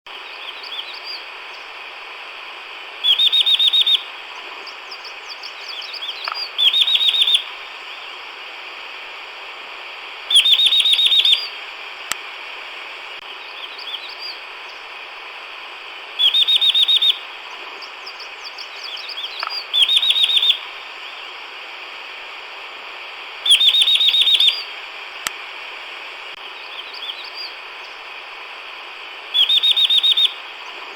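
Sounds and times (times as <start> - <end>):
background hiss: 0.1 - 30.9
bird trilling: 3.0 - 7.6, 10.3 - 11.6, 16.2 - 17.2, 18.0 - 20.7, 23.4 - 24.7, 29.4 - 30.4.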